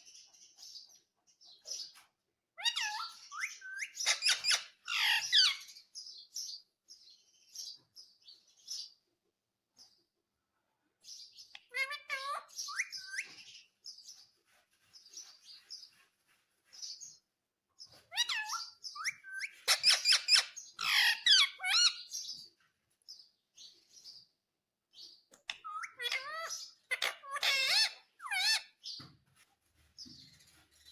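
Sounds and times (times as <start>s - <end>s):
parrot chirping and squawking: 2.6s - 5.8s, 11.5s - 13.6s, 17.8s - 22.3s, 25.4s - 29.0s.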